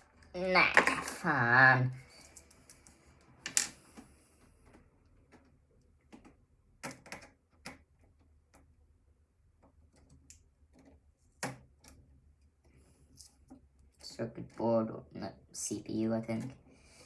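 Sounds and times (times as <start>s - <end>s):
computer parts clicking and tapping: 4.6s - 8.7s.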